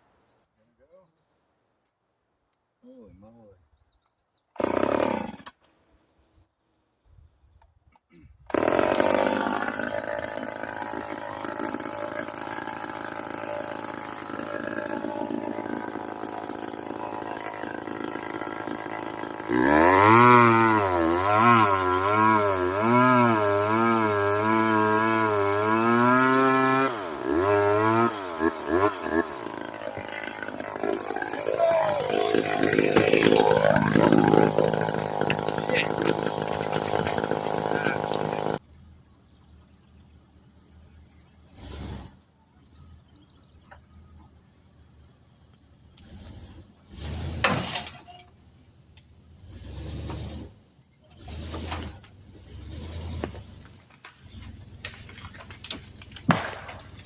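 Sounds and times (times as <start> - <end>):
chainsaw engine revving: 4.6 - 5.6, 8.5 - 38.6, 41.5 - 42.2, 46.0 - 47.8, 49.4 - 57.0.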